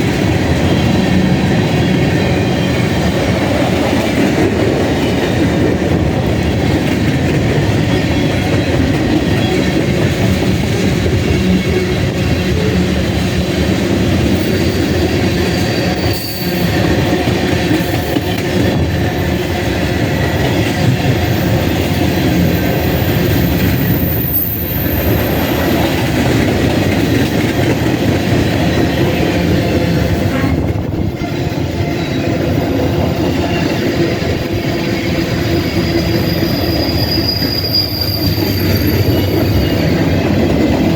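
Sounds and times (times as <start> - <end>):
freight train wheels rumbling: 0.0 - 40.9
wheel squeal: 14.4 - 17.2, 21.2 - 26.0, 35.0 - 40.1.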